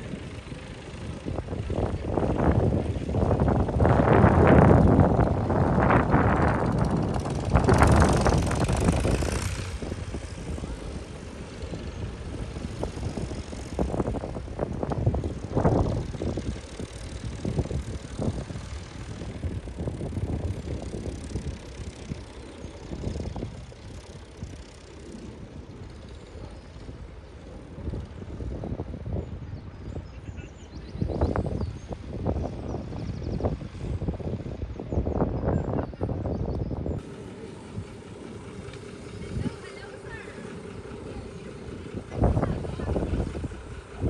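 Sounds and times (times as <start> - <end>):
tractor engines running past: 0.0 - 44.0.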